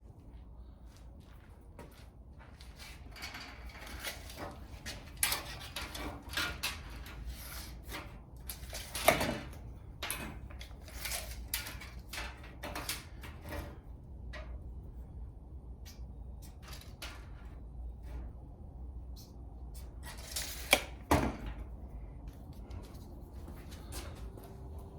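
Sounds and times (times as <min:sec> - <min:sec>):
scrapes: 0:02.4 - 0:14.0.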